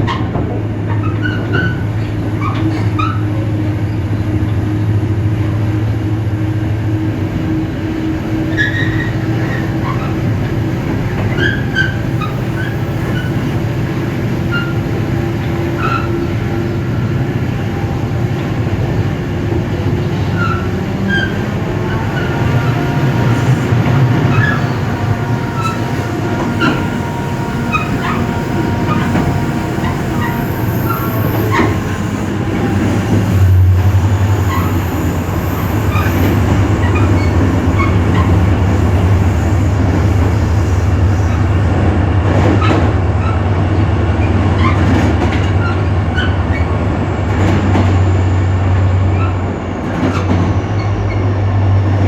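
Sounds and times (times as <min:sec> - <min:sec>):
rail clicks: 0:08.4 - 0:52.0
high wheel squeaks: 0:23.2 - 0:41.8.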